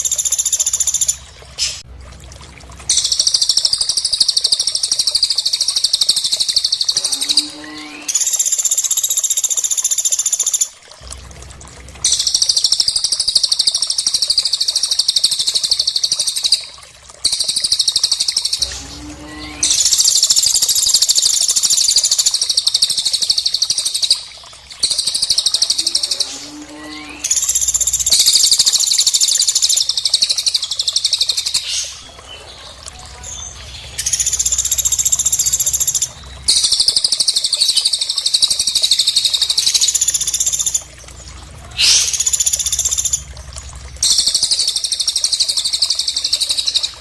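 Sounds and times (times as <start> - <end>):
high-pitched bird trills: 2.9 - 8.6.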